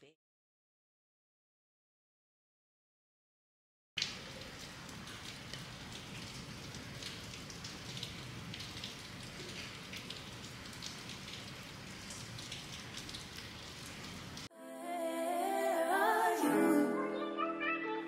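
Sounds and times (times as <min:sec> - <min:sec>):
raindrop hits: 0:04.0 - 0:14.5
steady rain hiss: 0:04.0 - 0:14.5.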